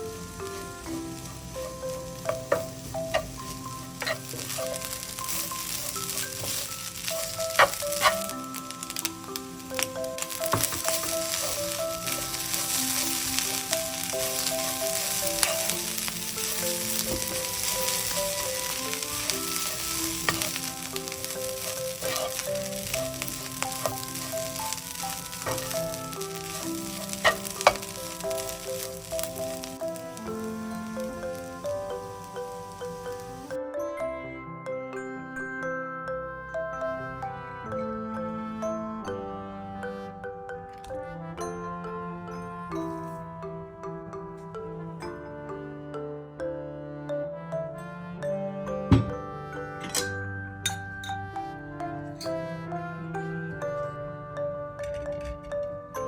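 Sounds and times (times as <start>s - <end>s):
slow background music: 0.0s - 56.0s
food sizzling in a hot pan: 0.1s - 33.5s
stirring: 2.2s - 32.0s.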